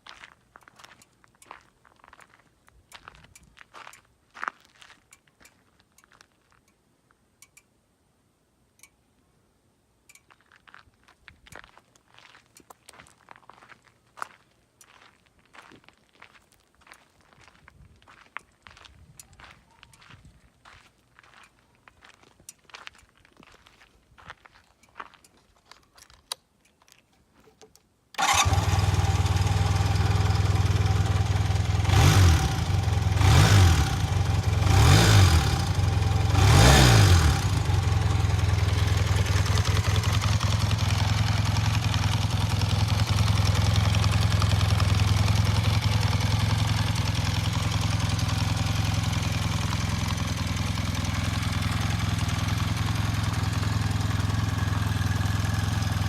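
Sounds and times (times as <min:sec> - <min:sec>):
engine revving with throttle blips: 0:28.2 - 0:40.5
motorcycle engine starting and idling: 0:28.2 - 0:56.0.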